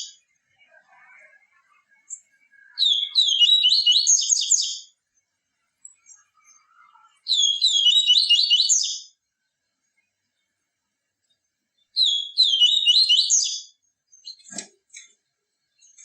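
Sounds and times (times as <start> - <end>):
bird high rapid chirping: 1.0 - 5.0, 5.8 - 9.1, 12.0 - 14.6.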